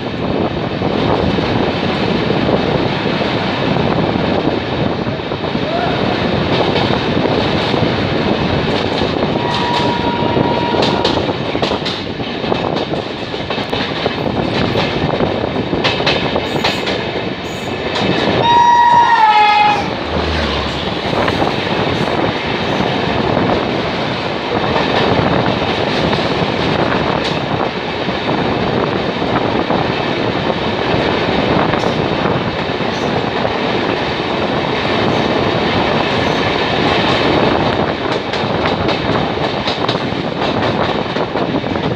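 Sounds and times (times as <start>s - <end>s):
train wheels and wind rushing: 0.0s - 41.9s
locomotive horn: 9.4s - 11.2s, 18.4s - 20.8s.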